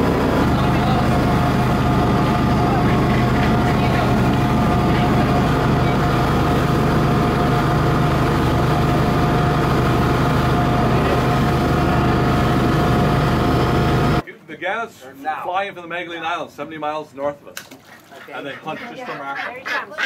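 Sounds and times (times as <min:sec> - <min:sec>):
boat engine droning: 0:00.0 - 0:14.2.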